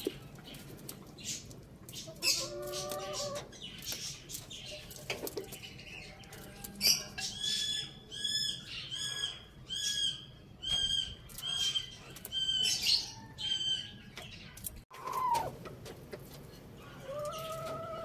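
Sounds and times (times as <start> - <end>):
bird chirping: 0.0 - 15.5
lower falling bird call: 14.9 - 15.6.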